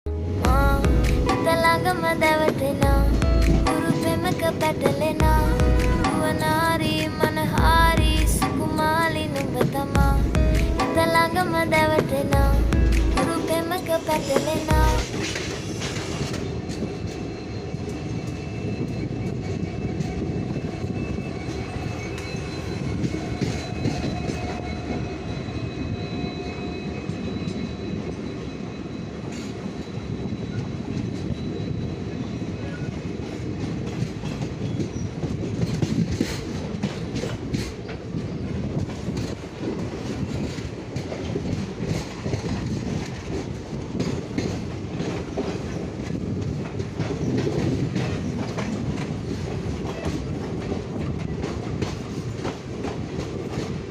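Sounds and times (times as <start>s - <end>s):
train wheels rumbling: 0.1s - 53.9s
clickety-clack over rail joints: 0.9s - 53.9s
faint high wheel squeal: 15.2s - 33.0s.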